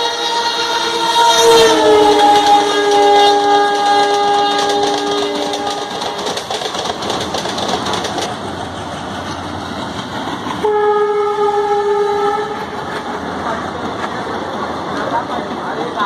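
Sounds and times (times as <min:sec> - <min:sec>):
train horn blast: 0:00.0 - 0:06.3, 0:10.6 - 0:12.8
train rumbling on rails: 0:00.0 - 0:16.0.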